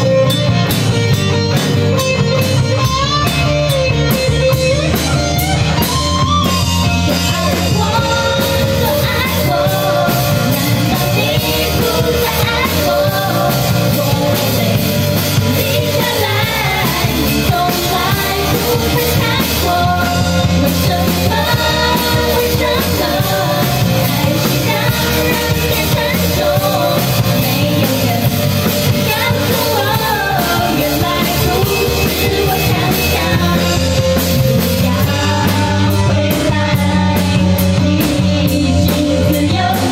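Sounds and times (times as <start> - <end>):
rock-pop band playing: 0.0 - 39.9
person singing: 4.9 - 39.9.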